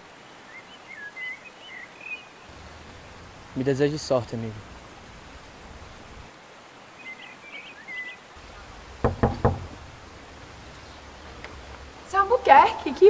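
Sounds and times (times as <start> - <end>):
knocks on a door: 9.0 - 9.9.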